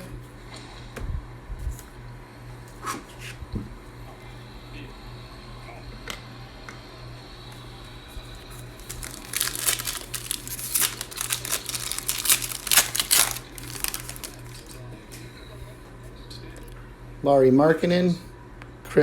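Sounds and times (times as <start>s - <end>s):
plastic wrapper crinkling: 8.6s - 14.8s.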